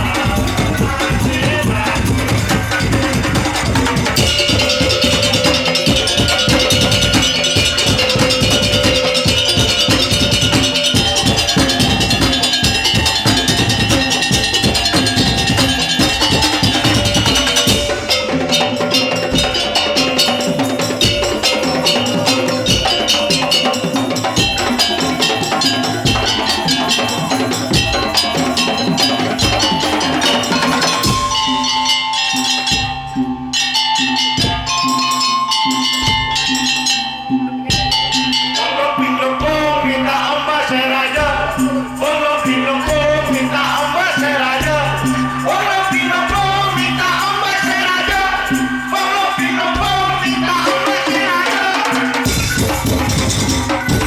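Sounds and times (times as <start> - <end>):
clicking percussion: 0.0 - 39.7
fast drumming: 0.0 - 54.0
sustained pitched melody: 0.0 - 54.0.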